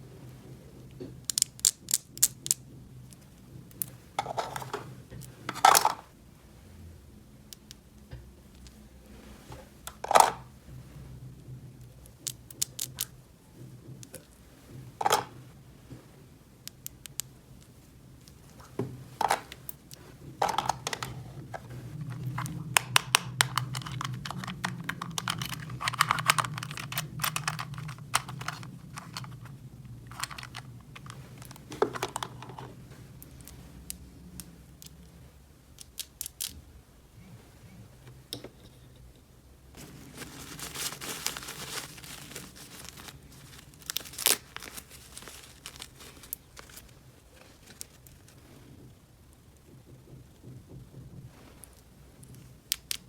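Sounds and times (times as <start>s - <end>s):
plastic toy pieces clicking: 1.2s - 2.6s, 22.2s - 29.5s
plastic wrap crinkling and tearing: 21.9s - 32.4s, 39.8s - 48.4s.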